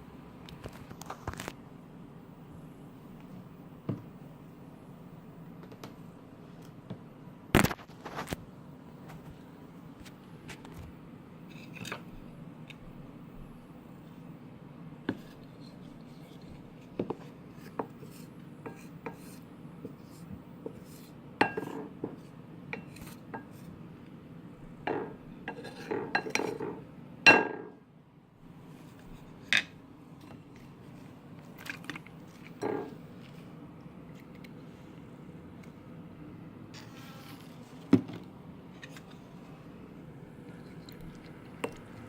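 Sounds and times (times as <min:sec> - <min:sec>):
steady low hum: 0:00.0 - 0:42.0
utensil clinking against a bowl: 0:21.4 - 0:21.9, 0:24.9 - 0:27.7.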